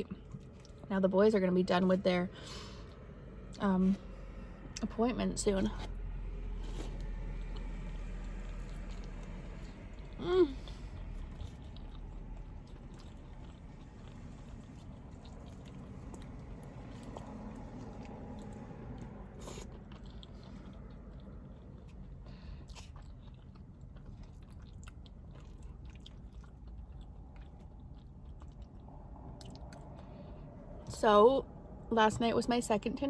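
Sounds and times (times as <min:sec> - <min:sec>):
person chewing food: 0:00.0 - 0:00.9, 0:05.7 - 0:30.8.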